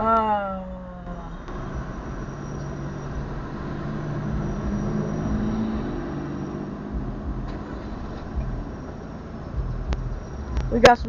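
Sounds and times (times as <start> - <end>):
vehicle engine hum from cabin: 0.0 - 11.0.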